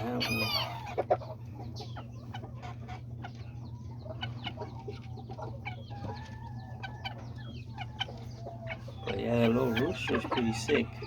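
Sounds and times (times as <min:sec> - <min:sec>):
chickens clucking: 0:00.0 - 0:11.0
steady low hum: 0:00.0 - 0:11.0.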